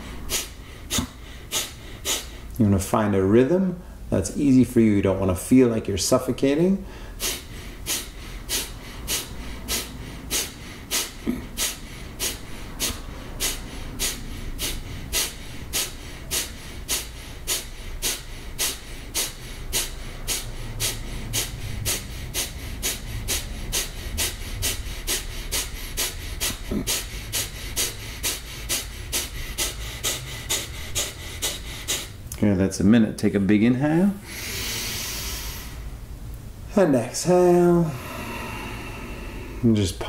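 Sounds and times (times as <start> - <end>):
forceful nasal exhalations: 0.0 - 2.6, 6.8 - 32.4, 34.2 - 36.0, 37.8 - 39.8.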